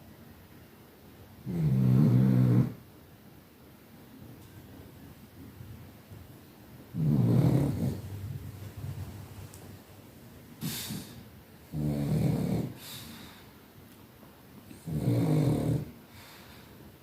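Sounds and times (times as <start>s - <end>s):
soft hissy breaths: 0.0s - 17.0s
dog snoring: 1.4s - 2.8s, 6.9s - 9.0s, 10.6s - 13.2s, 14.7s - 16.0s.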